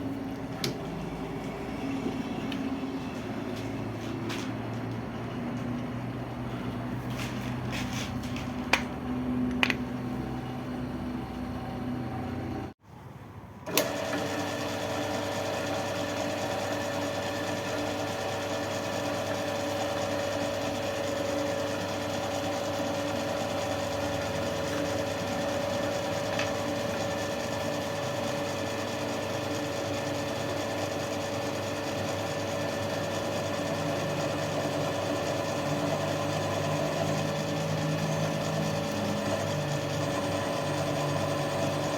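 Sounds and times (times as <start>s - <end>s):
motor machine humming: 0.0s - 12.8s, 13.7s - 41.9s.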